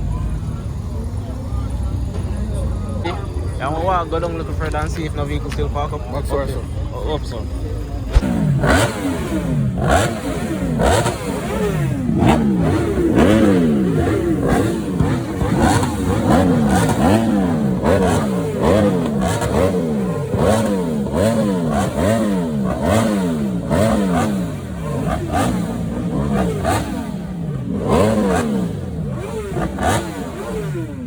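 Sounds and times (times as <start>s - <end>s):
engines revving: 8.0s - 31.0s.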